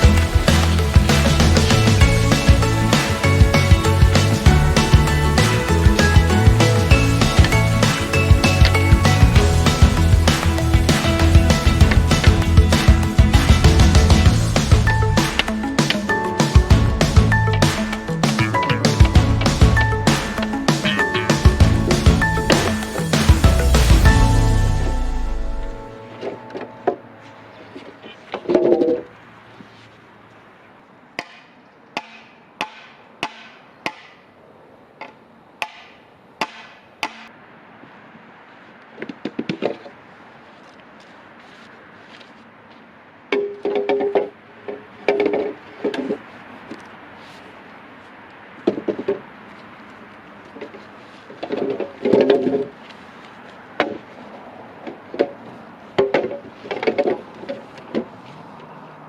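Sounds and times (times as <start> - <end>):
blade chopping bamboo: 31.2 - 34.2, 35.6 - 37.3.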